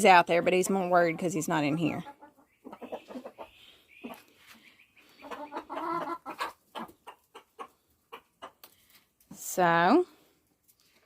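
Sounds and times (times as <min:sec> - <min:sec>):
hens clucking: 0:00.0 - 0:08.8.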